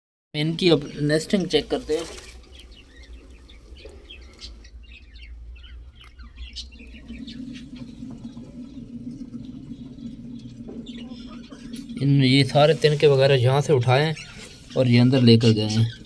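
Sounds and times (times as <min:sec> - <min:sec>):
cage birds chirping: 0:00.4 - 0:16.0
low steady hum: 0:00.8 - 0:14.7.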